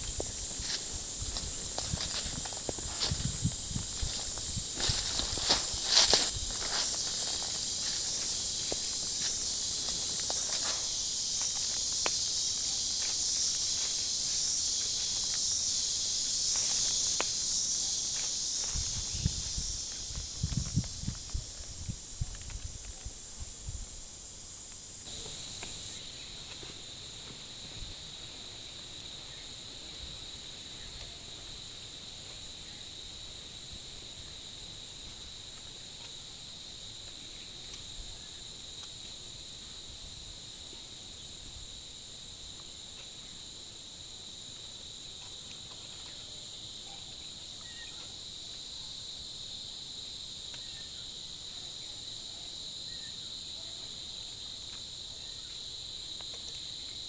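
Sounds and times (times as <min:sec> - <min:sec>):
insect chorus shrilling: 0:00.0 - 0:22.3, 0:25.0 - 0:34.3, 0:45.9 - 0:57.0.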